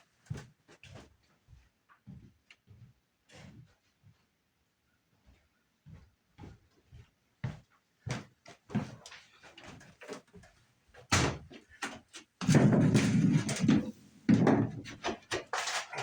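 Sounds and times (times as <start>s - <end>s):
knocks on wood: 12.4s - 15.3s.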